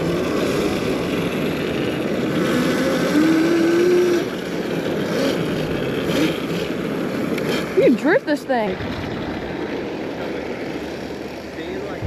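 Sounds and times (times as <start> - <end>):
electric motor whining: 0.0 - 11.4
steady rushing noise: 8.6 - 12.0.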